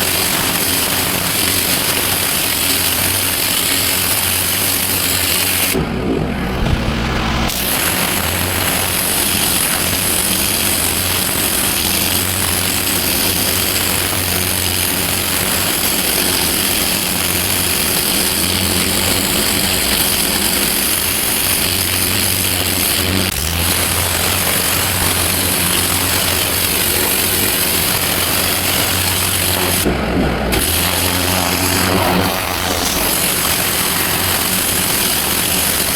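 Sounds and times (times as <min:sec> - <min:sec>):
water jet spraying paving: 0:00.0 - 0:35.9
low engine hum: 0:05.7 - 0:09.8, 0:22.5 - 0:35.0.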